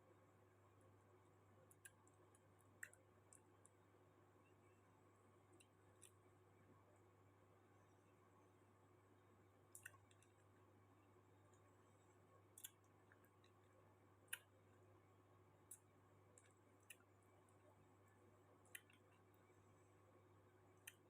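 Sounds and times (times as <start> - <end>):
faint low hum: 0.0 - 21.0
faint sharp clicks: 1.7 - 3.8, 9.7 - 10.4, 18.6 - 19.4, 20.8 - 21.0.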